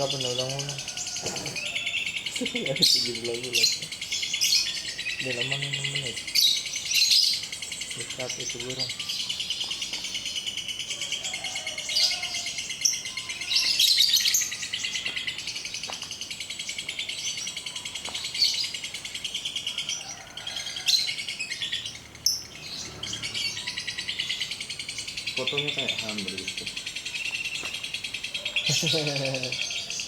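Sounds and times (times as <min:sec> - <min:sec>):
caged birds chirping: 0:00.0 - 0:30.0
lovebird chattering trill: 0:00.0 - 0:30.0.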